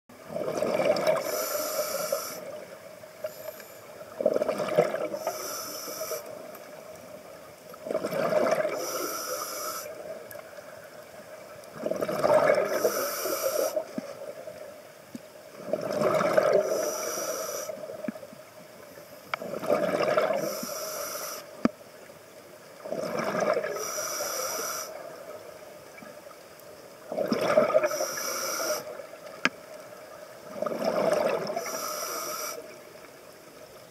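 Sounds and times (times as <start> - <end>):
exhaled bubbles rushing: 0.2 - 1.3, 4.1 - 5.2, 7.8 - 8.8, 11.7 - 12.8, 15.6 - 16.7, 19.4 - 20.5, 22.8 - 23.8, 27.1 - 28.0, 30.4 - 31.6
diver breathing through regulator: 1.2 - 2.6, 5.0 - 6.4, 8.2 - 10.0, 12.4 - 13.9, 16.5 - 17.8, 20.3 - 21.5, 23.7 - 25.1, 27.7 - 29.0, 31.5 - 32.7.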